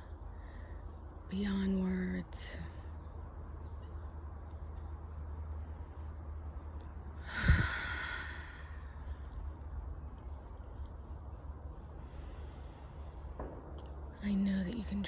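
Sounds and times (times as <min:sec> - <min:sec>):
woman sighing: 0:07.2 - 0:08.5.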